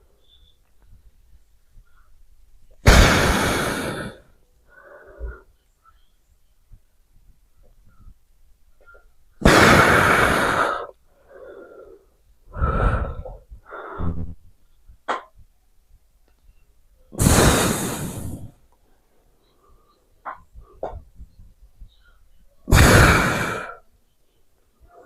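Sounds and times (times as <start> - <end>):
person breathing heavily: 2.8 - 5.6, 9.4 - 14.4, 17.2 - 18.6, 22.7 - 23.9.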